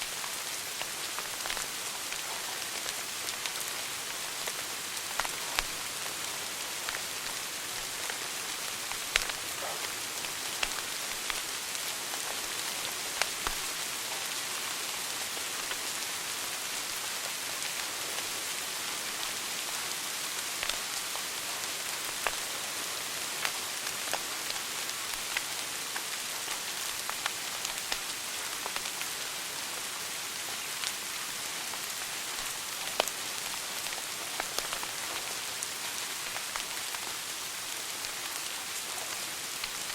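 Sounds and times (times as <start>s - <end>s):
wood fire crackling and popping: 0.1s - 13.7s, 22.1s - 22.5s, 23.4s - 29.0s, 32.4s - 37.3s, 37.9s - 39.9s.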